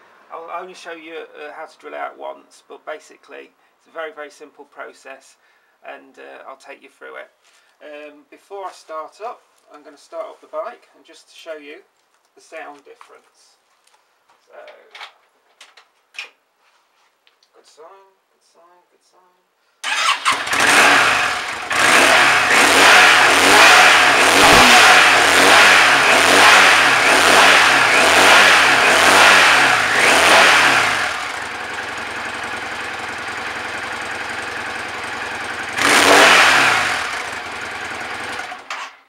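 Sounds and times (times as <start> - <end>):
motorcycle engine revving and idling: 19.9 - 38.8.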